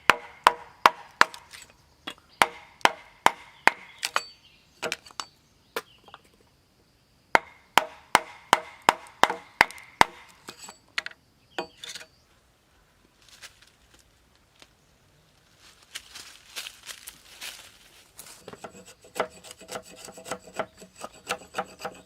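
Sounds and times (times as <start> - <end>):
hand tool chopping wood: 0.0 - 5.3, 7.4 - 10.8, 18.4 - 22.0.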